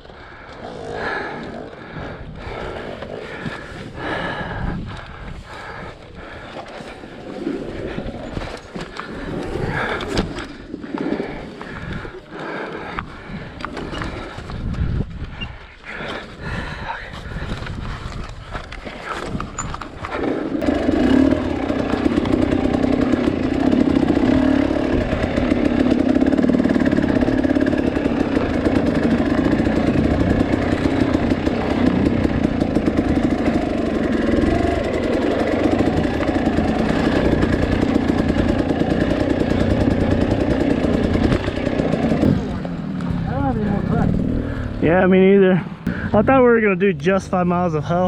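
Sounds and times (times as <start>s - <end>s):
two-stroke dirt bike engine: 19.1s - 47.4s.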